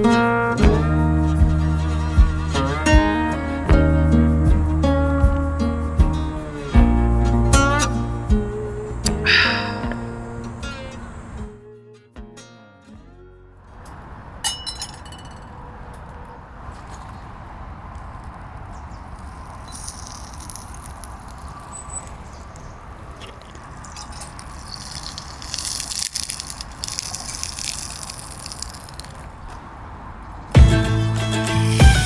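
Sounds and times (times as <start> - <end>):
hissing: 7.9 - 11.4, 19.1 - 29.3, 31.2 - 32.0
ringing clink: 14.5 - 15.6
liquid pouring and splashing: 23.1 - 29.3.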